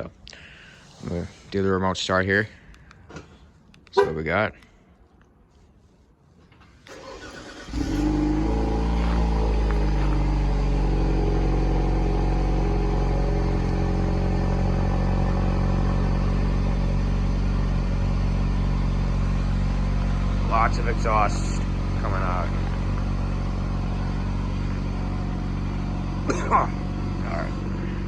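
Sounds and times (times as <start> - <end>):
car engine cranking and idling: 6.6 - 28.0.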